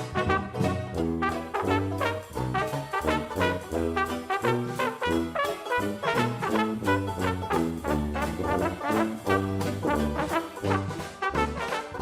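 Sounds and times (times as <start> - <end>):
jazzy swing brass music: 0.0 - 12.0.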